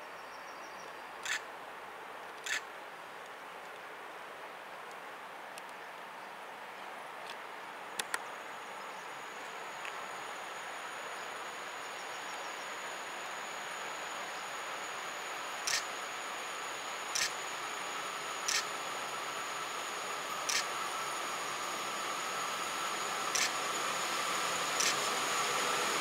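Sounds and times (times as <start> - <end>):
train running noise: 1.2 - 1.4, 2.4 - 2.6, 8.0 - 26.0
crickets chirping: 8.2 - 26.0
locomotive whine: 8.4 - 26.0.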